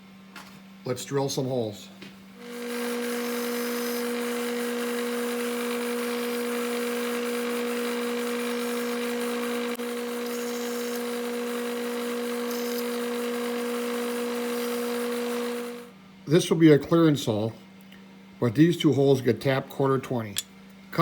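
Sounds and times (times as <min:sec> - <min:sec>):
milling machine humming: 0:02.4 - 0:15.9.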